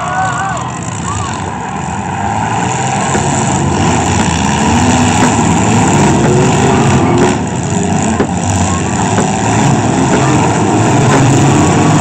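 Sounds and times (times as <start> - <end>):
engines revving: 0.6 - 12.0
vehicles knocking together: 2.6 - 12.0.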